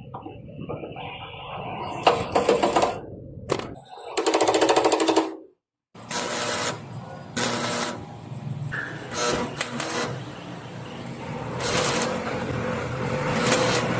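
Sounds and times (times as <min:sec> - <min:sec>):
arc welding crackling: 0:06.0 - 0:08.0, 0:08.9 - 0:10.4, 0:11.4 - 0:13.9.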